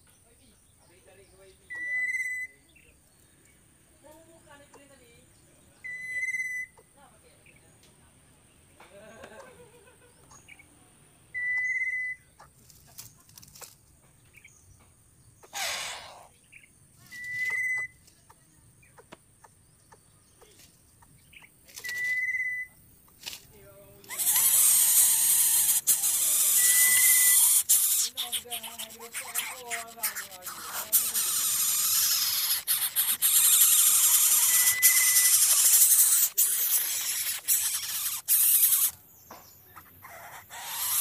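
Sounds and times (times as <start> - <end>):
loud hiss: 15.5 - 16.3, 30.8 - 38.9.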